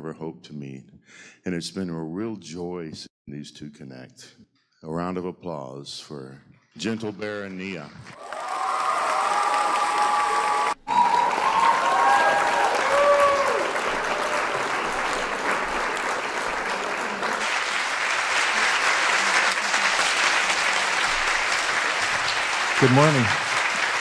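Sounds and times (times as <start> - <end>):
audience applauding: 8.1 - 24.0.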